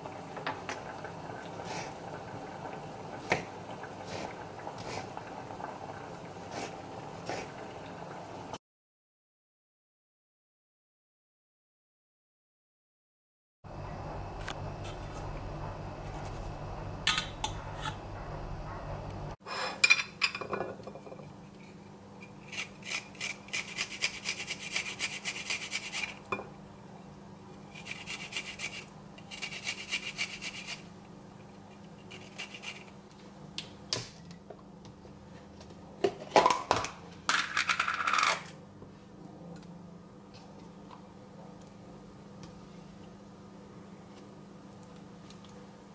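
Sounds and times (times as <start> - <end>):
utensils clicking and scraping dishes: 31.9 - 32.9.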